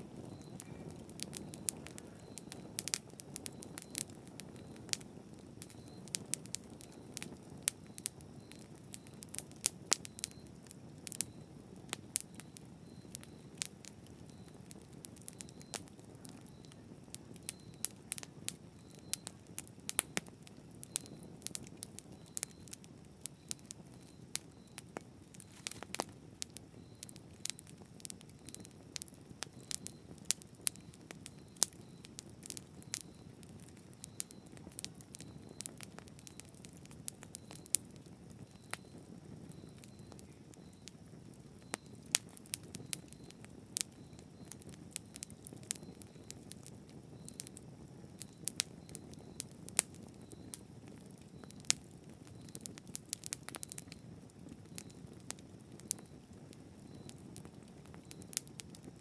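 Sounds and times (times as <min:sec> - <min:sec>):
burning wood crackles and pops: 0:00.0 - 0:59.0
campfire burning with low rumble: 0:00.0 - 0:59.0.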